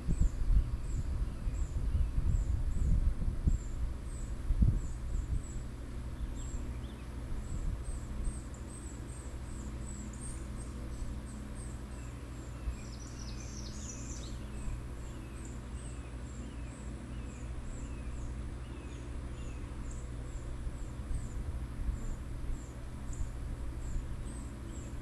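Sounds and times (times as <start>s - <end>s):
low wind rumble: 0.0s - 9.8s
lower bird chirps: 0.0s - 25.0s
thin high bird calls: 4.1s - 21.4s.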